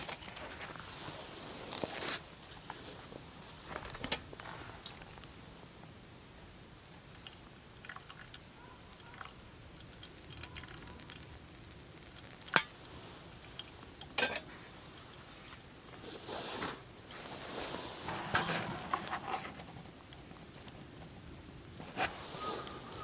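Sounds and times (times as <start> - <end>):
short rustle: 0.0 - 5.2, 14.5 - 19.7, 21.8 - 23.0.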